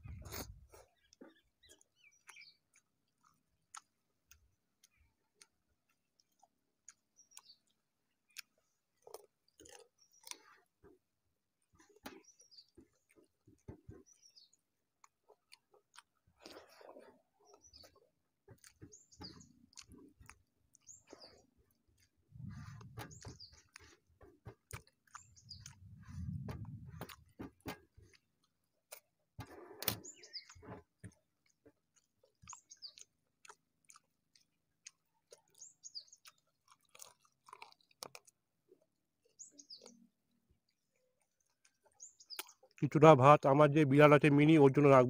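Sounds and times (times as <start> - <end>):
man chewing with mouth clicks: 0.0 - 42.9
bird chirping: 0.1 - 2.9, 17.4 - 20.0, 22.4 - 24.0, 25.1 - 27.2, 29.8 - 30.8, 32.4 - 33.1, 35.3 - 36.4, 39.3 - 40.1, 42.0 - 42.6
fingers working food on steel plate: 17.4 - 33.0
muffled low rumbles: 25.8 - 27.2.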